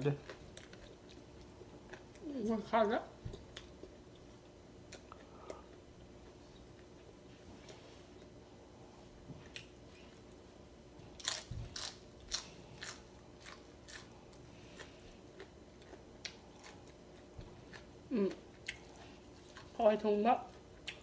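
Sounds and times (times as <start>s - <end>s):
crisp crunching and chewing: 11.2s - 17.9s
person humming: 18.1s - 18.4s.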